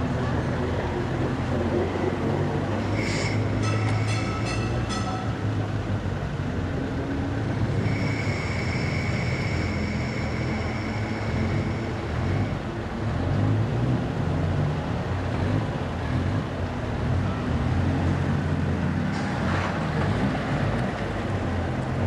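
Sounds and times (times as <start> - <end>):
car engines running: 0.0 - 22.0
thin high whine: 7.7 - 12.6.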